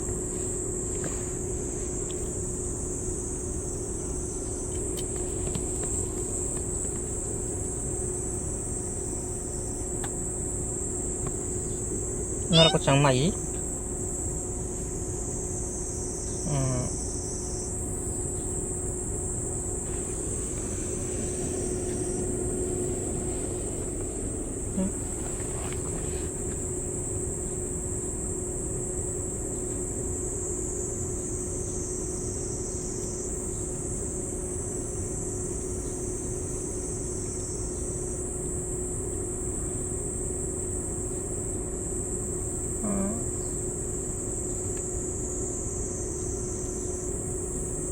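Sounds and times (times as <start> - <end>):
high insect chorus: 0.0 - 47.9
low mechanical hum: 0.0 - 47.9
short vocal sounds: 12.5 - 13.0, 16.5 - 17.0.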